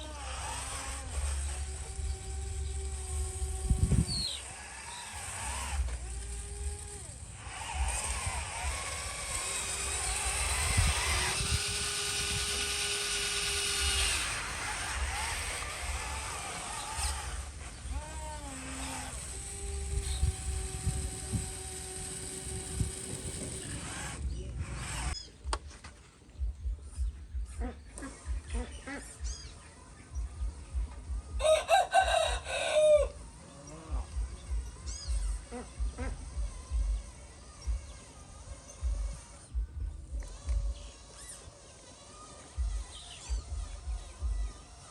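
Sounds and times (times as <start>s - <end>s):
small electric motor whining: 0.0s - 44.9s
wavering motor whine: 0.0s - 44.9s
rooster crowing: 31.4s - 33.2s.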